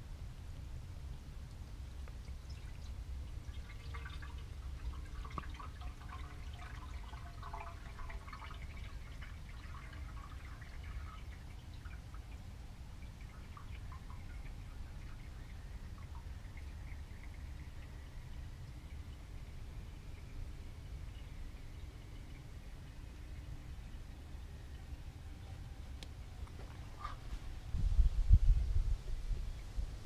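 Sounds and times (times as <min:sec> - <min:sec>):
oil glugging from a bottle: 0:02.2 - 0:19.5.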